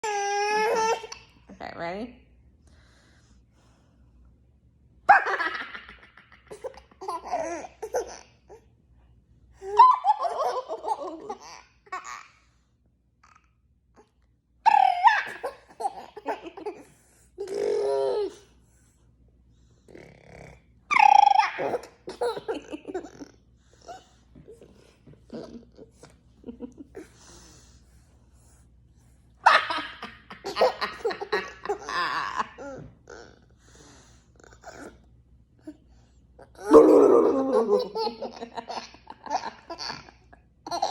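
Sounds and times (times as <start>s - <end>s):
toddler laughing: 5.1s - 8.3s, 20.9s - 23.3s.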